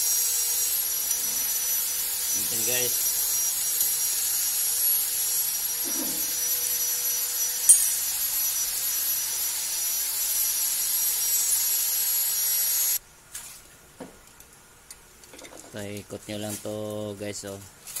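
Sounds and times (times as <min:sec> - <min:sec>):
high-pitched hiss with whine: 0:00.0 - 0:13.0.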